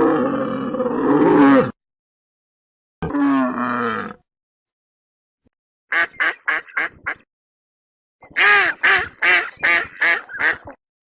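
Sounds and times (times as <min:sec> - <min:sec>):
duck quacking: 0:05.9 - 0:07.2, 0:08.3 - 0:10.8.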